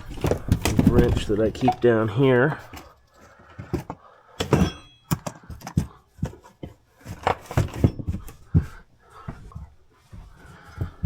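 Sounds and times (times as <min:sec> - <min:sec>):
hand tools knocking and clattering: 0:00.0 - 0:02.9, 0:03.5 - 0:08.8.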